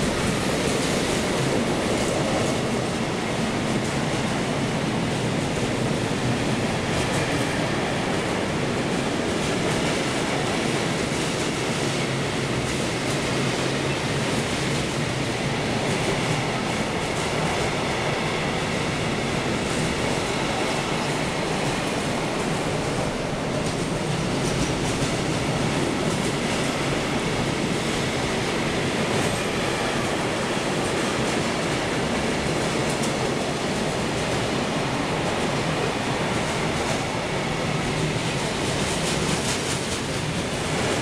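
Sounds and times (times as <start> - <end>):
train wheels on rails: 0.0 - 41.0.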